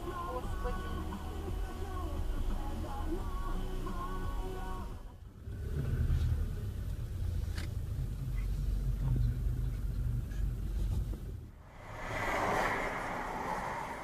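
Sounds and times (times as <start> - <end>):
music: 0.0 - 5.2
car engine and road noise: 0.0 - 14.0.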